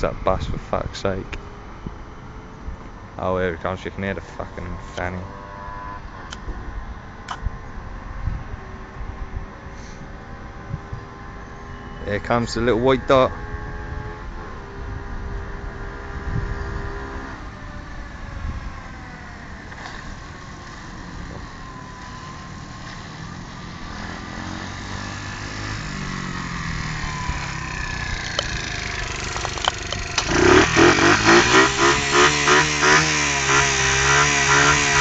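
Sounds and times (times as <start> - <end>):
pit bike engine revving: 10.7 - 17.6, 19.6 - 35.0.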